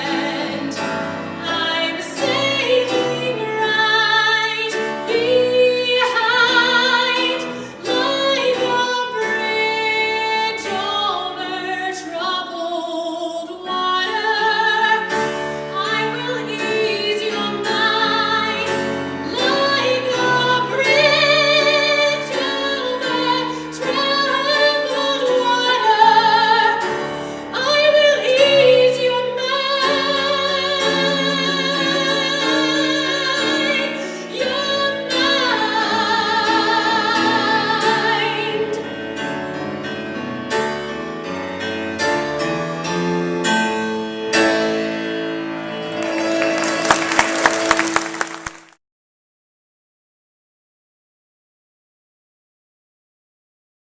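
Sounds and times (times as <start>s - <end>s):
woman singing opera: 0.0s - 38.8s
piano accompaniment: 0.0s - 48.8s.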